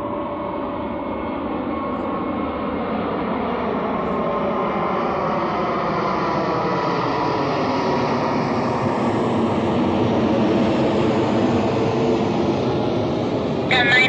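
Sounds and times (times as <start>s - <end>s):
jet engines running: 10.3s - 14.0s.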